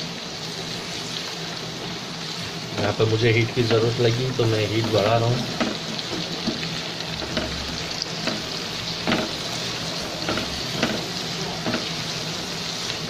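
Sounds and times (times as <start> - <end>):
vegetables sizzling in oil: 0.0 - 13.0
spatula knocking against pan: 4.8 - 6.6, 7.2 - 9.4, 10.2 - 11.9.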